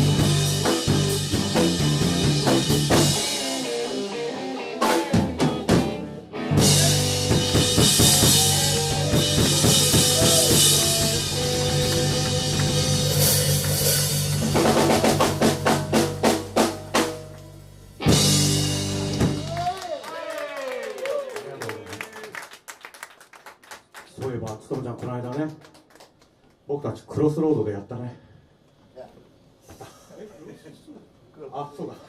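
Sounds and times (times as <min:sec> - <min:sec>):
live rock band playing: 0:00.0 - 0:20.2
quick drum strokes: 0:06.6 - 0:17.3.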